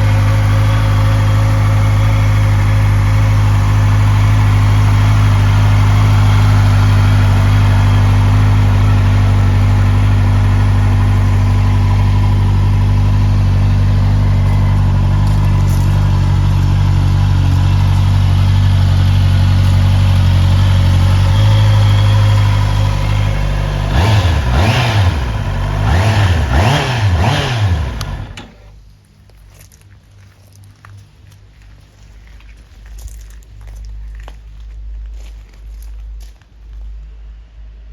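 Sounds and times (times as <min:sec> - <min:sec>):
motorcycle engine idling and revving: 0:00.0 - 0:28.8.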